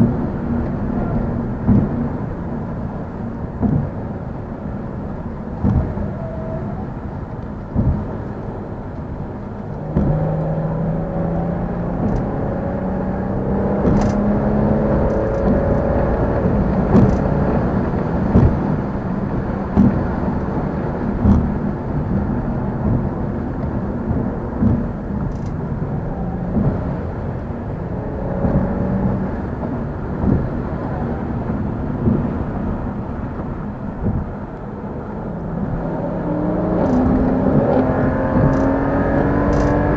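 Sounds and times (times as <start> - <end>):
car engine accelerating hard: 0.0 - 39.9
road noise: 0.0 - 39.9
short thumps: 1.6 - 2.3, 3.5 - 4.2, 5.5 - 6.6, 7.6 - 34.6.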